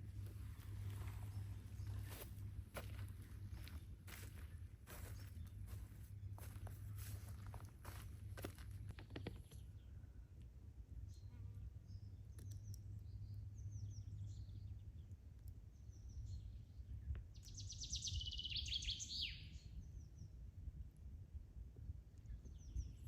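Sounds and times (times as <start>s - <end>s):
steady low rumble: 0.0s - 17.6s, 19.6s - 23.0s
birds singing and chirping: 15.8s - 20.2s
bird song of rapid falling notes: 15.9s - 20.2s.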